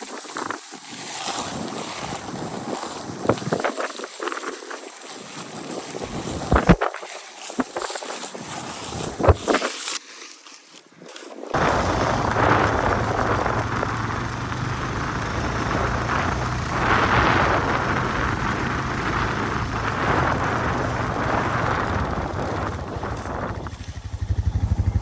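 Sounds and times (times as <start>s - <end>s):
road and wind noise: 0.0s - 6.8s, 11.5s - 25.0s
engine low hum: 11.6s - 25.0s
fast low pulsing: 11.6s - 25.0s.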